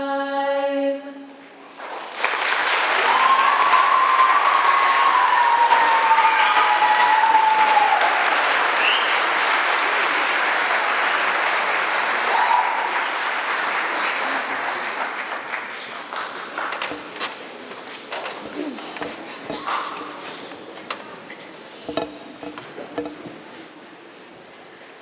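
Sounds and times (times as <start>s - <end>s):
audience applauding: 1.8s - 19.1s
knocks: 16.8s - 17.4s, 18.2s - 23.8s.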